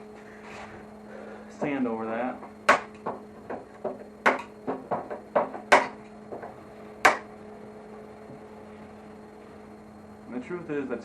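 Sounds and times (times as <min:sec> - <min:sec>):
steady electrical hum: 0:00.0 - 0:11.0
sharp knocks: 0:02.4 - 0:07.3.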